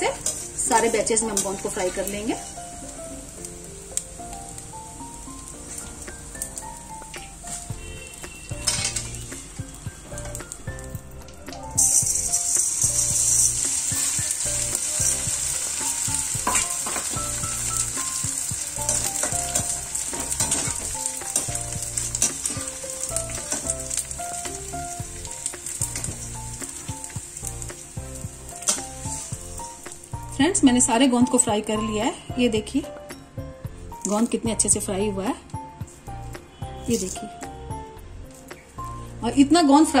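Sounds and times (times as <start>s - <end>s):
gum sizzling in hot fat: 0.0s - 31.5s
crackling of frying pieces: 0.0s - 31.8s, 33.9s - 37.6s.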